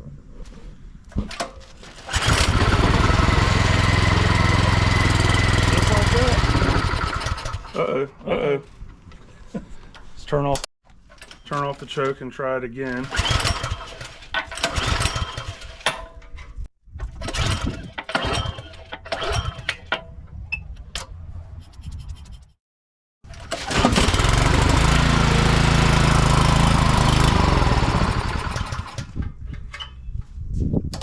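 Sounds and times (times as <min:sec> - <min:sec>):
recoil starter pulls: 0:01.2 - 0:07.8, 0:10.9 - 0:16.3, 0:17.0 - 0:21.1, 0:23.2 - 0:30.0
engine sputtering and running: 0:02.1 - 0:07.8, 0:13.0 - 0:15.8, 0:17.0 - 0:20.0, 0:23.3 - 0:29.2.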